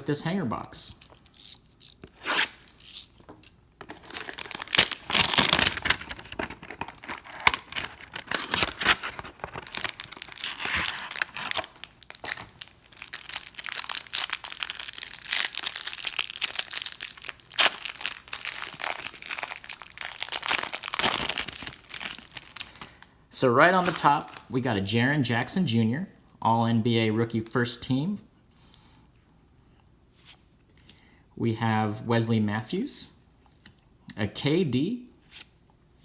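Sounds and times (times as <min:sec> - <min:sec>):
cardboard and plastic tearing: 0:03.8 - 0:22.9, 0:23.8 - 0:24.4.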